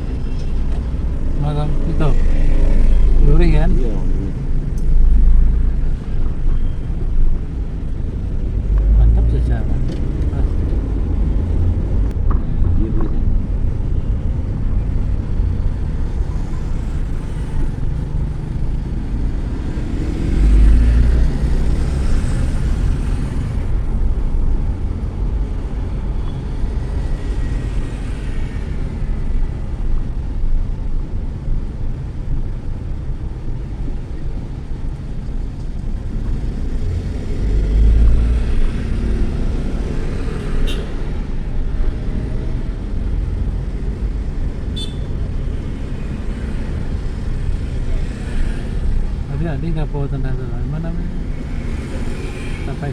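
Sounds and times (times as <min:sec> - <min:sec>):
road traffic rumble and hiss: 0:00.0 - 0:52.9.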